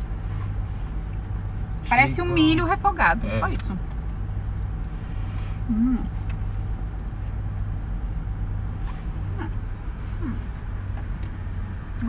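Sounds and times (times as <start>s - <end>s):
car engine idling: 0.0s - 12.0s
person humming mm: 5.6s - 6.1s.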